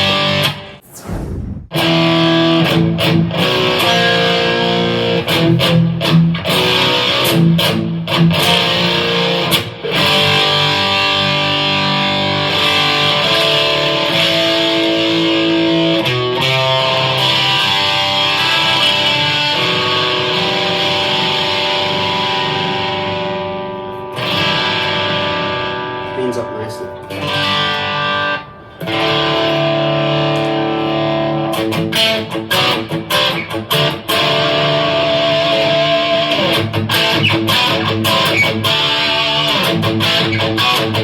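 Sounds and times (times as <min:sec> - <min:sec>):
distorted electric guitar chords: 0:03.5 - 0:26.1, 0:27.0 - 0:41.0.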